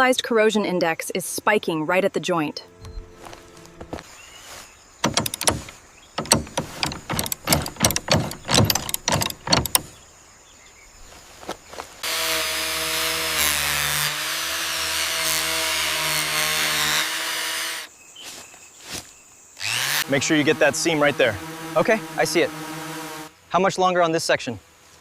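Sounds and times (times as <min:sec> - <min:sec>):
sharp knocks and taps: 0:05.0 - 0:09.9
power tool whining: 0:05.0 - 0:10.0, 0:12.0 - 0:17.9, 0:19.6 - 0:23.3.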